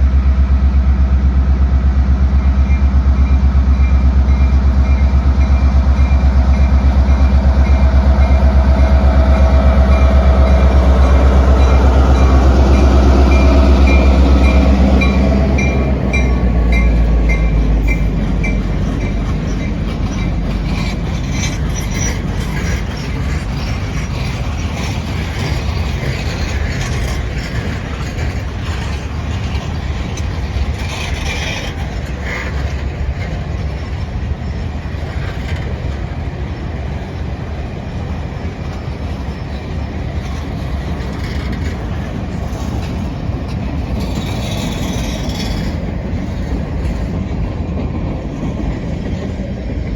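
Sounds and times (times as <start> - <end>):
locomotive engine rumble: 0.0 - 49.9
train wheels clicking on rail joints: 1.8 - 49.9
crossing bell dinging: 2.4 - 24.3.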